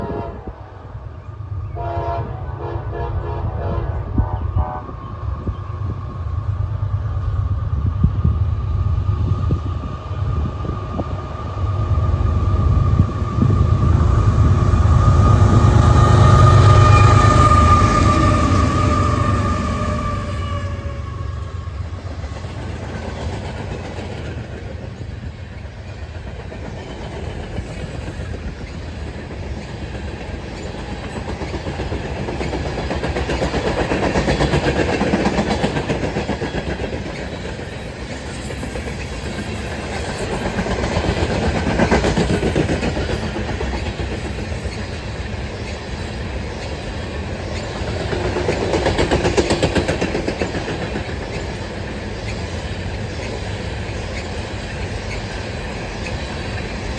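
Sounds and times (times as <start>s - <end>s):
freight train rumbling: 0.0s - 56.9s
wheels clacking over rail joints: 13.8s - 56.9s.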